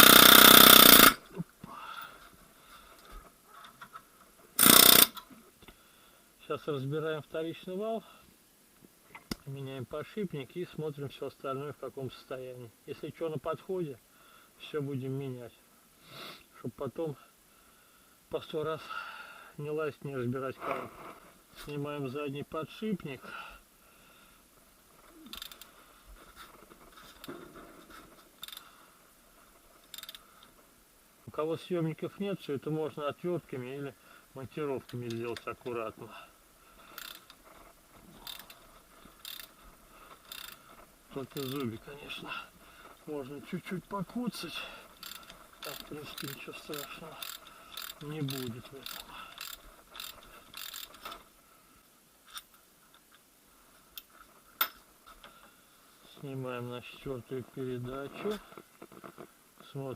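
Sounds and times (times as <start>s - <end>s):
faint metallic tool clicks and scraping: 25.0s - 25.8s, 28.0s - 28.7s, 29.4s - 30.6s, 36.8s - 41.8s, 44.8s - 51.3s, 52.2s - 53.2s
metal parts scraping rattle: 45.0s - 51.2s.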